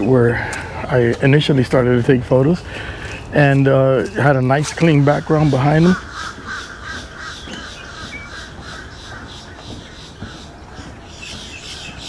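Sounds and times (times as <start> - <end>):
high repeated bird call: 4.1 - 12.0
low rippling bird call: 4.7 - 12.0.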